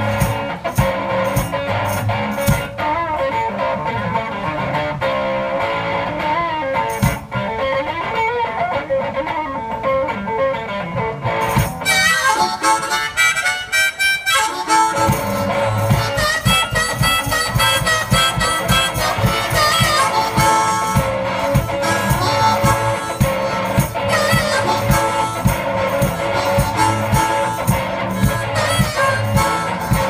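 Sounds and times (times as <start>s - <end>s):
blues guitar accompaniment: 0.0s - 30.0s
harmonica solo: 11.8s - 30.0s.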